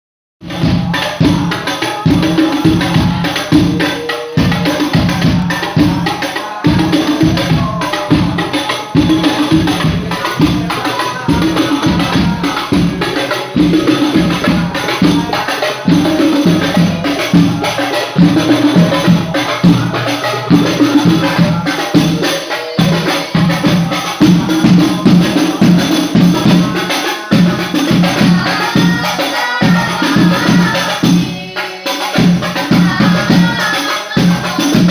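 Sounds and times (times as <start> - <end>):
frame drums playing a rhythm: 0.4 - 34.9.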